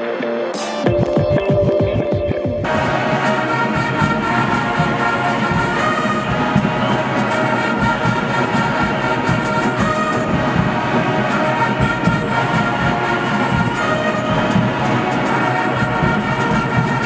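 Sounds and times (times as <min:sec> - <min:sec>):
instrumental music with held chords: 0:00.0 - 0:03.8.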